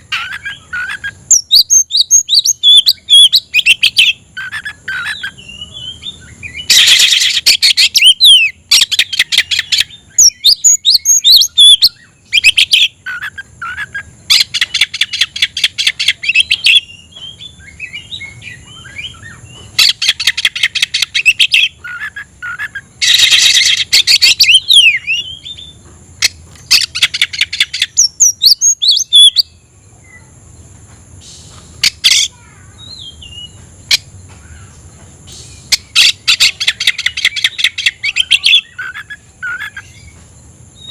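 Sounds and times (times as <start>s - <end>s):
bird singing: 0.0s - 40.9s.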